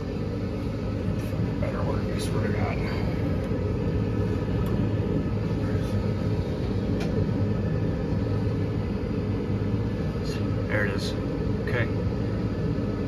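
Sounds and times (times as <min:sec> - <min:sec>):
furnace motor humming: 0:00.0 - 0:13.0.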